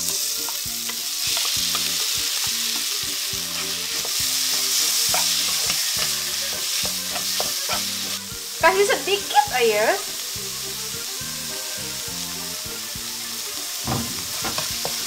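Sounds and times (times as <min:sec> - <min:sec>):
tofu sizzling in hot oil: 0:00.0 - 0:15.0
spatula tapping and scraping wok: 0:00.4 - 0:08.2, 0:13.8 - 0:15.0.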